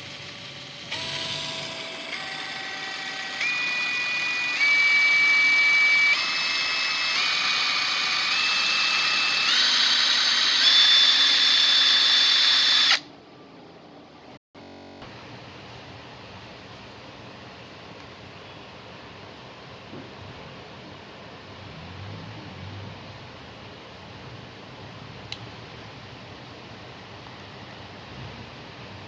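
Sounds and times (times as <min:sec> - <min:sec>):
impact wrench motor whine: 0:00.0 - 0:13.0.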